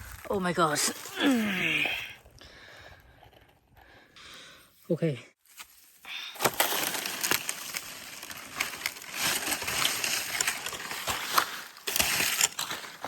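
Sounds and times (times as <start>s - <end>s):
dry leaves rustling and crackling: 5.4s - 13.0s.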